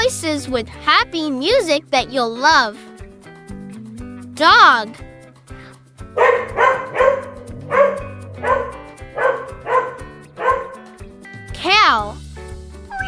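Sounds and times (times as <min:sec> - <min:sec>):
light background music: 0:00.0 - 0:13.0
dog barking: 0:06.2 - 0:10.9.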